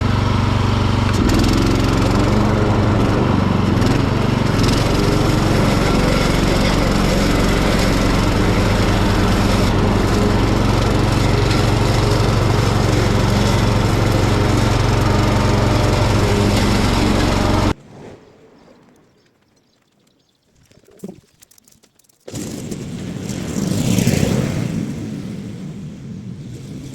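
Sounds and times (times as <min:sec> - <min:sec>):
ride-on mower engine running: 0:00.0 - 0:17.8.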